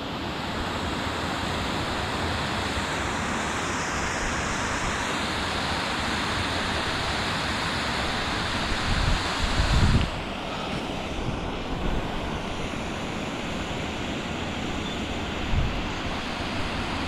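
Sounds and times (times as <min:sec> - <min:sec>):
waterfall rushing: 0:00.1 - 0:17.0.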